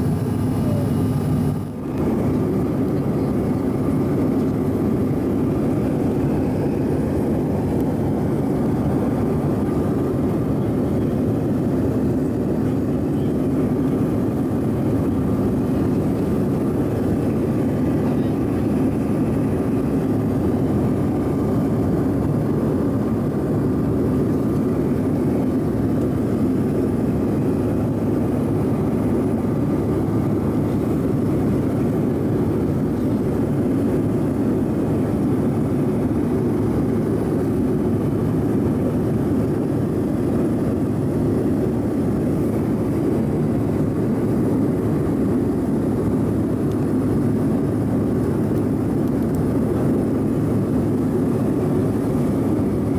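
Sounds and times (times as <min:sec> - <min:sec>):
airliner cabin engine drone: 0:00.0 - 0:52.9.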